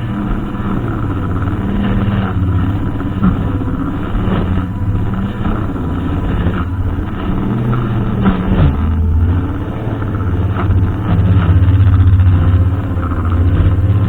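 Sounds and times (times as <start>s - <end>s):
brushcutter engine running: 0.0s - 14.0s.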